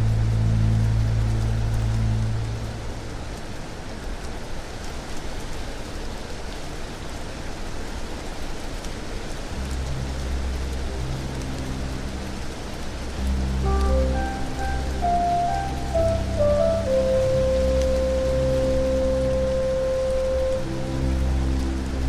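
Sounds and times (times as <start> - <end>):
low ambient music bass notes: 0.0 - 3.5, 9.5 - 22.0
steady rain falling: 0.0 - 22.0.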